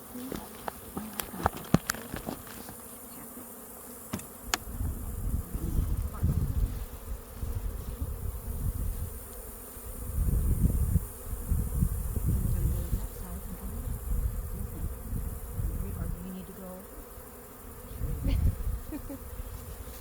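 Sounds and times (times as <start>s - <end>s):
honey bees buzzing: 0.0s - 20.0s.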